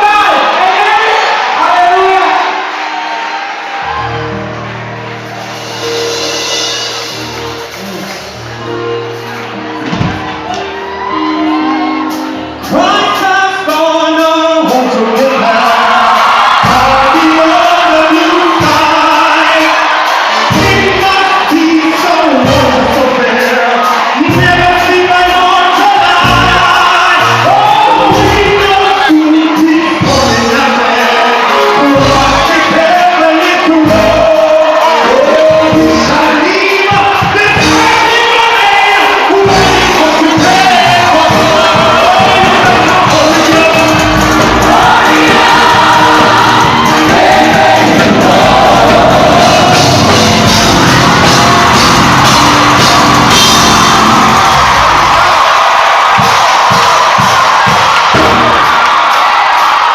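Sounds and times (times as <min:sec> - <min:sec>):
gospel worship music: 0:00.0 - 0:59.9
band with bass and drums: 0:05.3 - 0:59.9
people singing with shouts: 0:12.7 - 0:59.9.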